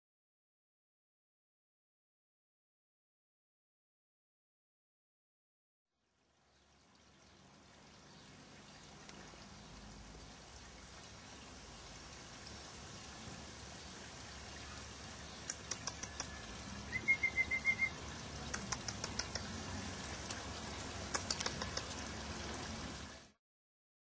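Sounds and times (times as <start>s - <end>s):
faint outdoor hiss: 6.0s - 23.4s
small bird chirping trill: 14.5s - 19.6s
light high clicks: 18.5s - 19.5s.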